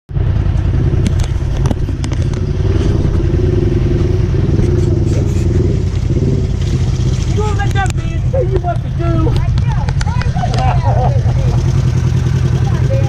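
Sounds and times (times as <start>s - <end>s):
vehicle engine idling: 0.1s - 13.0s
sharp clicks and knocks: 0.5s - 3.0s, 7.6s - 10.7s.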